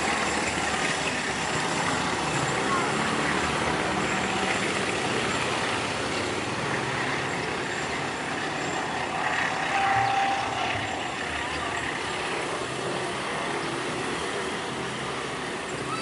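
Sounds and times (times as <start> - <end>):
train rumbling: 0.0 - 16.0
faint high squeal: 9.6 - 11.1.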